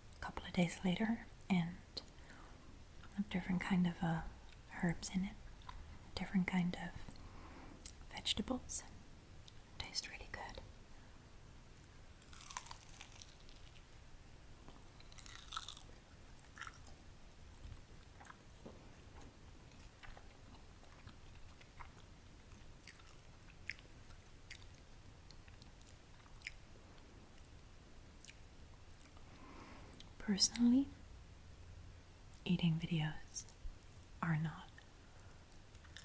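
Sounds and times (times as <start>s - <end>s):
chewing with soft crunches: 5.4s - 6.0s, 11.8s - 14.0s, 14.6s - 30.2s, 34.7s - 36.0s.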